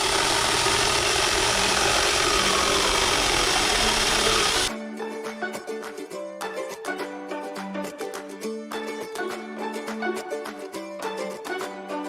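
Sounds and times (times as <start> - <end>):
mini chainsaw buzzing: 0.0 - 4.7
plucked-string music: 0.0 - 12.0.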